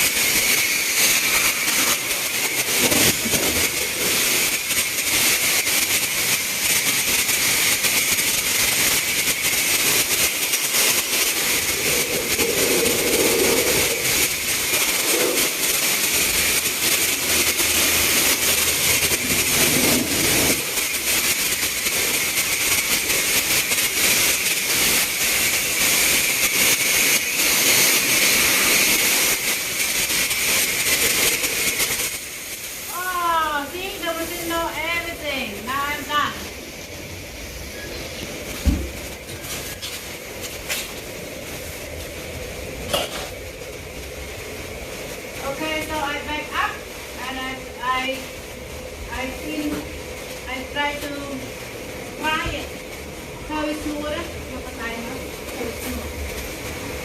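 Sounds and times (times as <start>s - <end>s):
pressure washer spray hissing: 0.0s - 57.0s.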